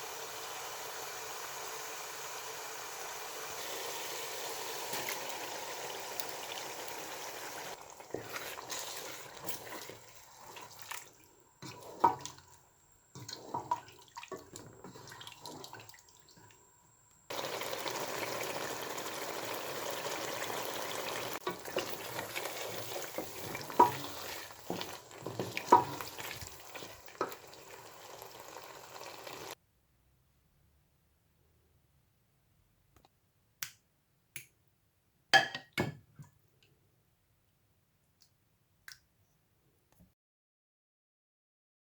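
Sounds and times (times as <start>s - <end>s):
steady kitchen hiss: 0.0s - 29.6s.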